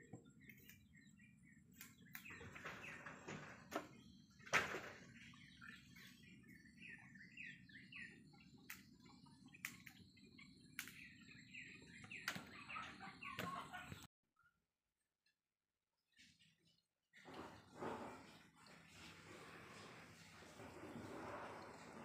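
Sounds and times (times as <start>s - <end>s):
birds chirping: 0.0s - 14.1s, 16.4s - 22.0s
sharp clicks: 10.8s - 11.1s.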